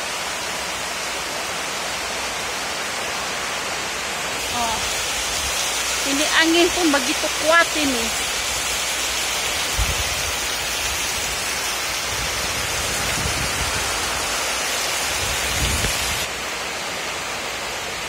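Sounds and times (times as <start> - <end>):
heavy rain falling: 0.0 - 18.0
wind gusting: 4.4 - 16.3.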